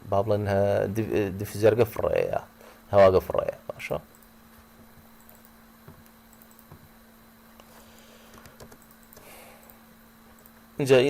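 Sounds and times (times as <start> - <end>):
low electrical hum: 0.0 - 11.0
typing on computer keyboard: 6.3 - 6.8.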